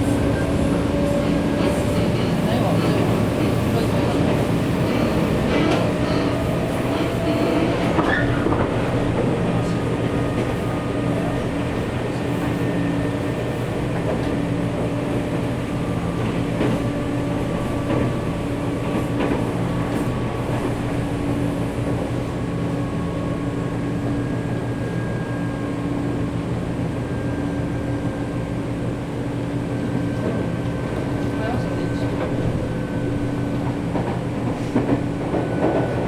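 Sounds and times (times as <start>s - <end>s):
train running gear rumble and hum: 0.0s - 36.0s
faint clicks from rails: 33.6s - 36.0s.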